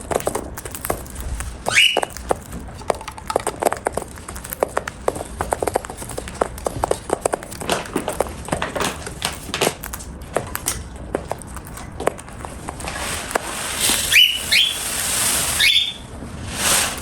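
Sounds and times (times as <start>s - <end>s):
beak crunching food: 0.0s - 15.8s
bird rising chirp: 1.7s - 2.2s, 14.0s - 16.1s.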